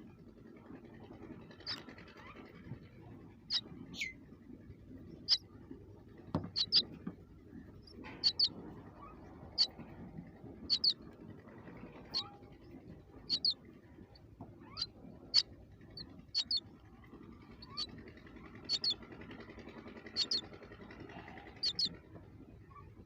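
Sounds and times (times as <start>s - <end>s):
faint low hum: 0.0s - 23.0s
baby birds cheeping: 1.6s - 2.4s, 3.5s - 4.3s, 5.0s - 5.4s, 6.4s - 7.0s, 7.7s - 9.8s, 10.6s - 11.0s, 12.1s - 16.8s, 17.4s - 19.1s, 20.0s - 20.5s, 21.1s - 22.0s.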